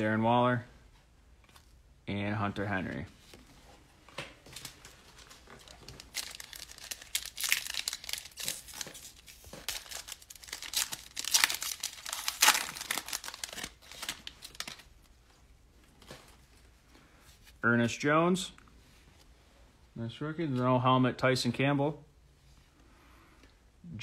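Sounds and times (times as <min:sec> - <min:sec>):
plastic wrapper tearing and crinkling: 0:04.6 - 0:15.0.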